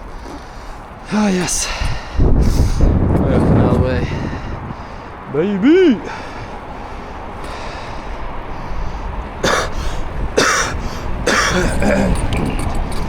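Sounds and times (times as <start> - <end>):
wind rumble on microphone: 0.0 - 13.0
person coughing: 9.4 - 9.8, 10.4 - 12.7.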